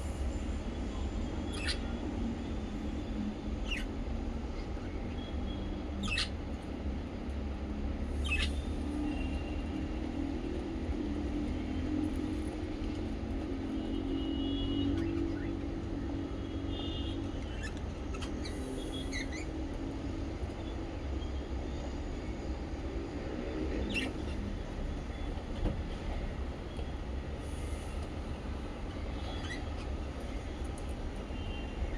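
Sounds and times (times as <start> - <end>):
parrots chirping and squeaking: 1.5 - 1.8, 6.0 - 6.4, 8.2 - 8.6, 17.5 - 19.5, 29.2 - 29.9.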